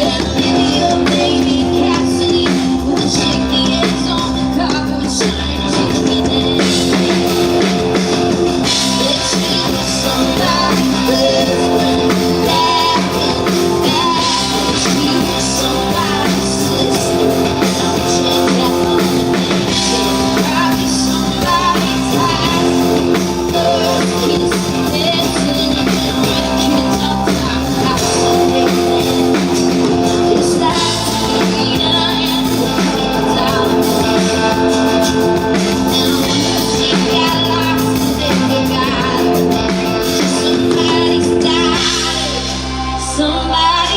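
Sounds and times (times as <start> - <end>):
guitar: 0.0 - 43.9
live band music: 0.0 - 43.9
person singing: 0.0 - 43.9.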